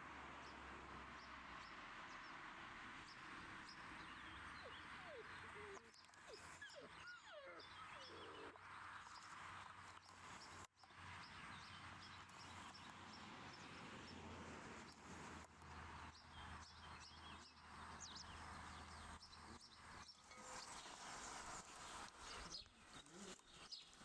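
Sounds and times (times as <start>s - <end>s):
small birds chirping: 3.1s - 13.8s, 16.0s - 24.0s.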